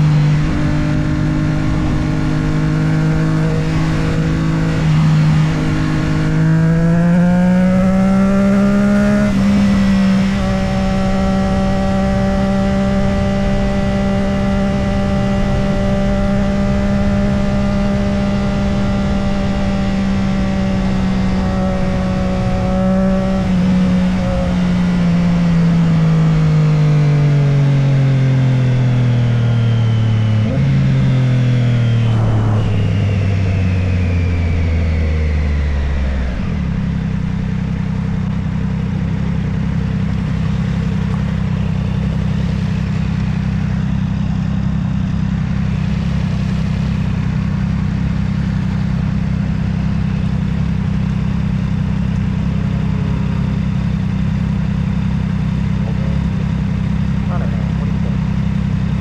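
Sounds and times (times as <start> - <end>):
motorcycle engine: 0.0 - 59.0.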